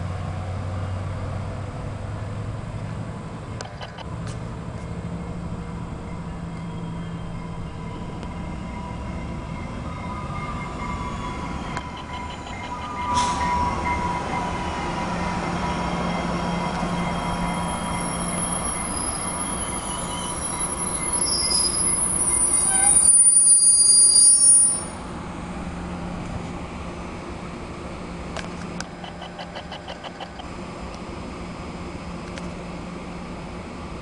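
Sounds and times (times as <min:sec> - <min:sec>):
train cars rumbling past: 0:00.0 - 0:34.0
high-pitched wheel squeal: 0:06.2 - 0:09.1, 0:09.8 - 0:25.1.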